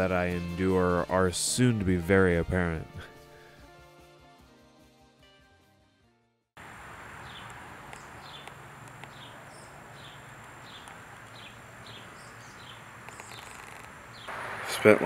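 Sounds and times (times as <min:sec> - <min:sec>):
small bird chirping: 0:07.2 - 0:14.3.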